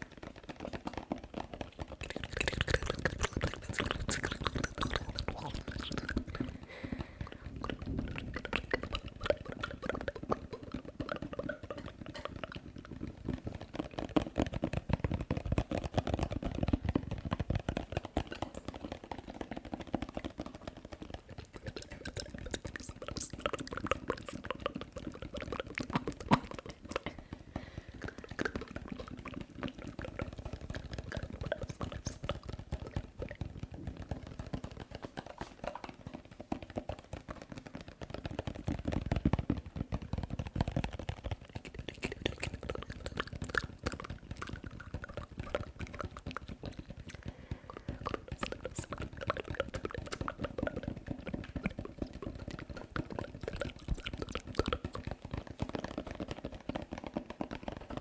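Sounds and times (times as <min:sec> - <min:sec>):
wet mouth clicks and smacks: 0:00.0 - 0:58.0.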